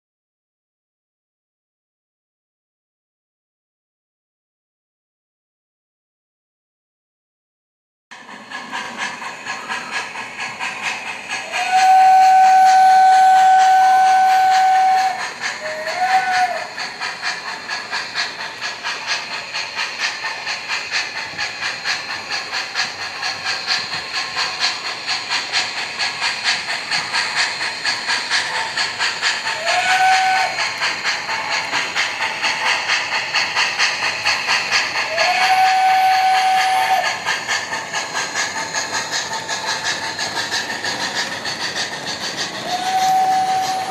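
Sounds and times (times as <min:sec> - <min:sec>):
steam chuffing: 0:08.1 - 0:43.9
whistle blasts: 0:11.6 - 0:16.7, 0:29.6 - 0:30.6, 0:42.6 - 0:43.9.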